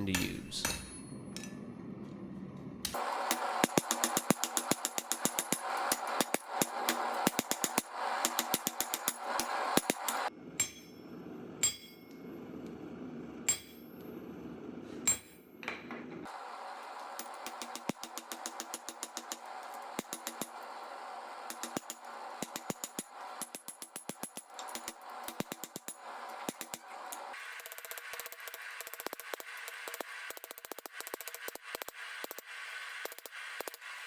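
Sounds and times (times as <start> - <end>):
hammer striking steel on anvil: 0.0 - 1.6, 2.8 - 12.3, 13.5 - 14.2, 15.0 - 16.0, 17.0 - 20.7, 21.5 - 27.3
steady background hum: 0.0 - 27.6.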